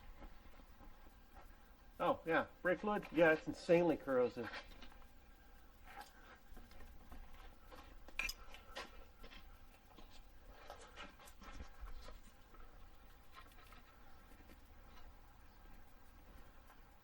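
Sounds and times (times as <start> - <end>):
hand tool clicks and scrapes: 4.4 - 11.8.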